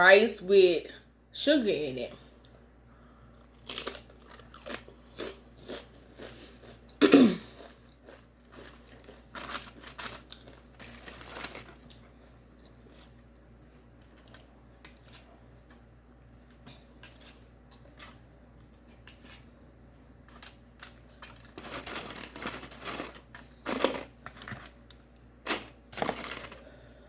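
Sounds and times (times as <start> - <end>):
chewing and crunching food: 3.3 - 27.0
person coughing: 7.0 - 7.6.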